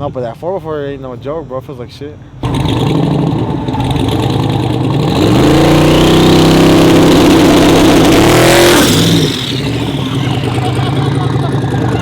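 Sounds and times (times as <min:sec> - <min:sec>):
truck engine revving: 0:02.4 - 0:12.0.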